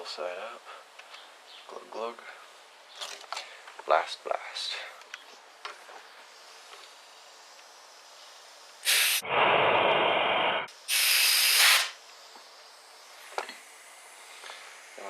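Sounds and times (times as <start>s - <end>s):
compressed air hissing bursts: 6.2s - 15.0s.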